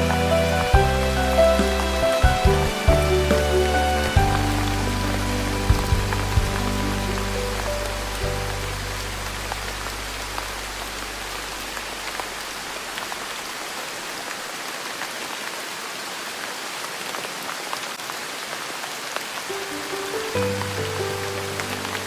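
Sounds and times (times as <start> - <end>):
gentle melody: 0.0 - 11.9, 19.5 - 22.0
soft low music notes: 0.0 - 12.1, 19.7 - 22.0
steady rain: 0.0 - 22.0.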